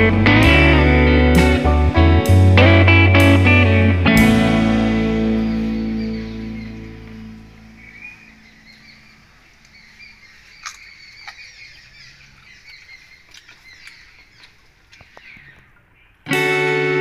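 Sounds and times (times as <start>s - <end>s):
small birds chirping: 4.8s - 17.0s.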